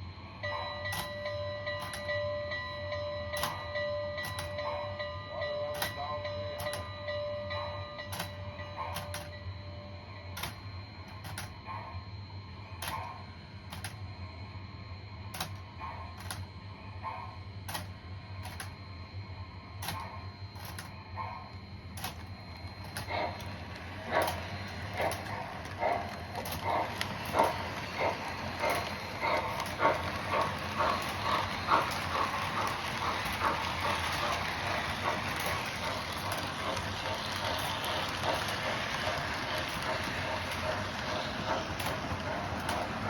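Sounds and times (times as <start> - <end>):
steady low hum: 0.0 - 43.0
model train wheels clicking: 0.9 - 2.2, 3.4 - 4.8, 5.6 - 6.9, 7.6 - 9.4, 12.8 - 14.0, 15.4 - 15.6, 17.7 - 18.8, 19.8 - 21.4, 22.0 - 43.0.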